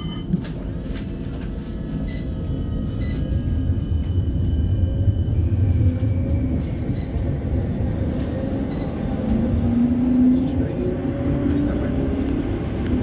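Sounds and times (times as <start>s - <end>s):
tram wheels rumbling on rail: 0.0s - 13.0s.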